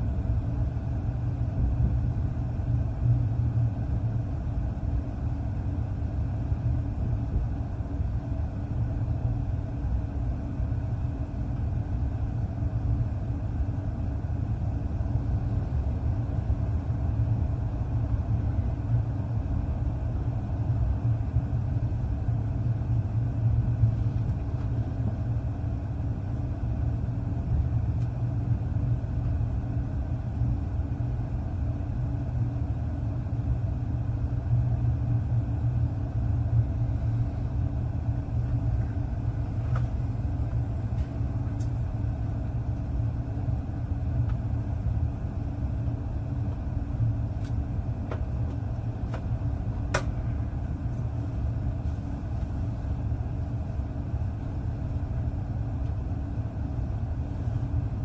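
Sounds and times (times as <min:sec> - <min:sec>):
train rumbling on the track: 0:00.0 - 0:58.0.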